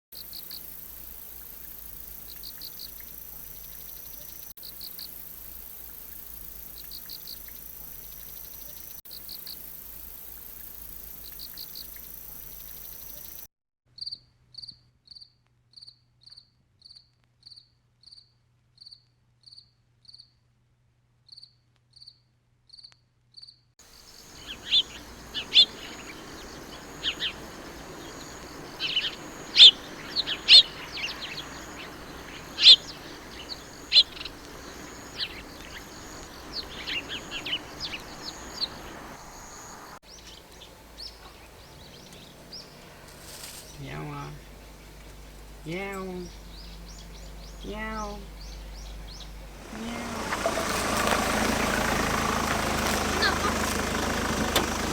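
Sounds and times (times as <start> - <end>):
birds chirping: 0.0 - 13.5, 23.9 - 54.9
cricket chirping: 0.2 - 13.5, 23.8 - 54.9
high insect buzz: 0.2 - 13.5, 23.9 - 54.9.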